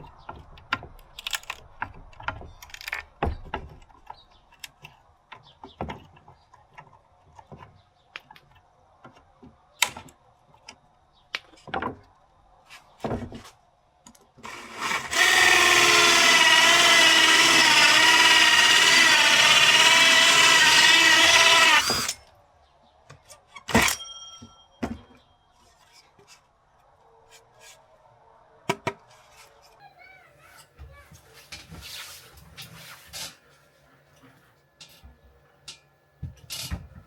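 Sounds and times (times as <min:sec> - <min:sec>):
electric drill running: 0:14.4 - 0:22.2.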